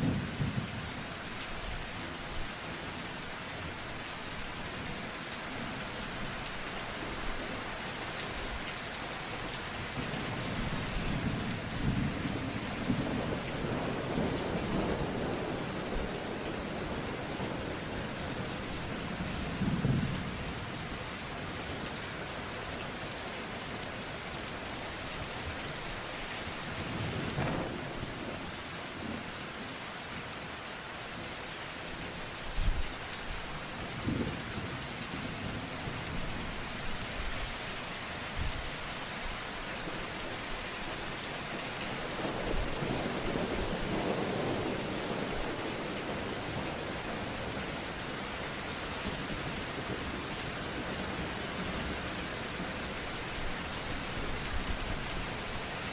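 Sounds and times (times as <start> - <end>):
heavy rain: 0.0 - 55.9
thunder rumbling: 27.0 - 28.4
thunder claps: 27.2 - 28.0.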